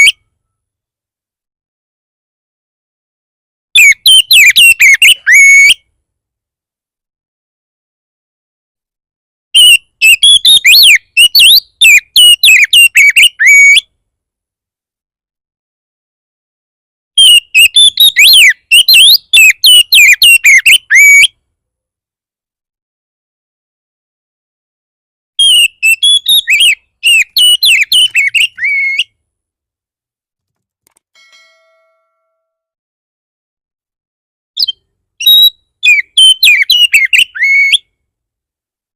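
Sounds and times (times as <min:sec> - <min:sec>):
magpie-robin whistled song: 0:00.0 - 0:00.3, 0:03.8 - 0:05.8, 0:09.6 - 0:13.9, 0:17.2 - 0:21.4, 0:25.4 - 0:29.2, 0:34.6 - 0:38.0.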